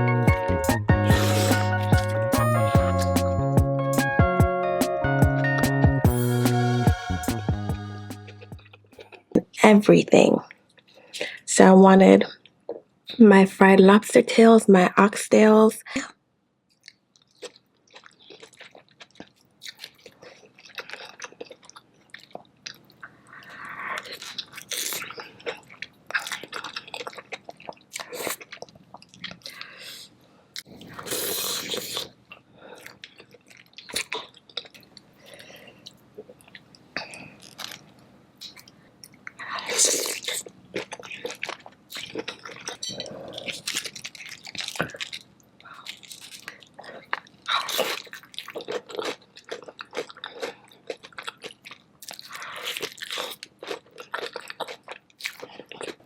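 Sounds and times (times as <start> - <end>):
wet chewing and lip smacking: 16.7 - 30.0, 30.6 - 56.0.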